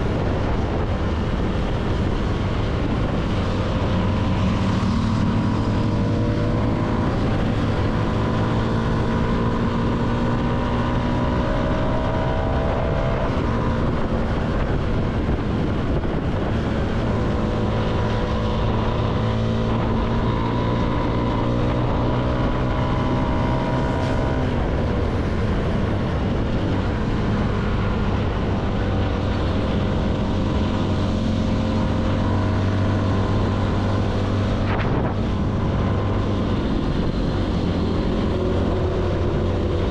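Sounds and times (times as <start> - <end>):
motorcycle engine accelerating: 0.0 - 39.9
wind rush: 0.0 - 39.9.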